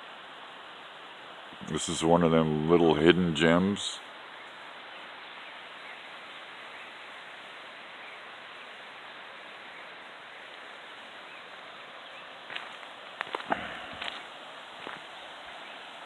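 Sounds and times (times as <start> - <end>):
waterfall and creek rushing: 0.0 - 16.0.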